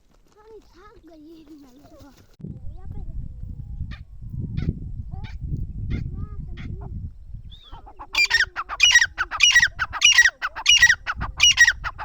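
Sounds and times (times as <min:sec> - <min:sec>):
low rumble: 0:02.4 - 0:07.9
francolin harsh repeated calls: 0:07.5 - 0:12.0.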